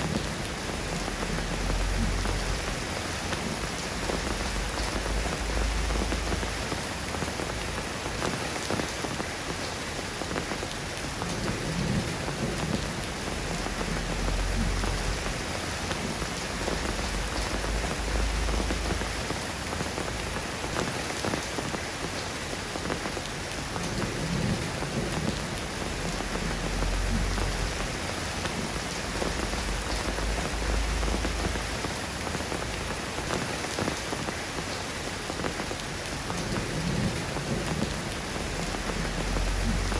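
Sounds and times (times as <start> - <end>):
steady rain falling: 0.0 - 39.9
low rumbles of thunder: 11.2 - 19.5, 23.8 - 32.8, 36.3 - 39.9.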